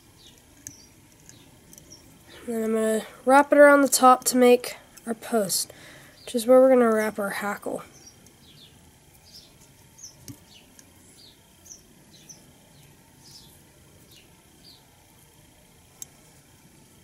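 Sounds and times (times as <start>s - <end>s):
faint bird chirps: 0.1s - 2.5s.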